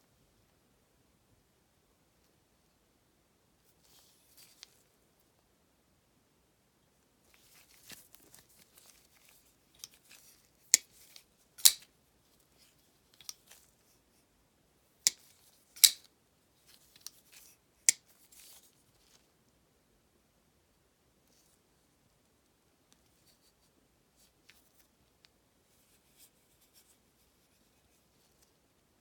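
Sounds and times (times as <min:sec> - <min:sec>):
handling rustle: 0:07.2 - 0:14.0
folding knife blade clicking: 0:11.6 - 0:11.8, 0:15.8 - 0:16.1.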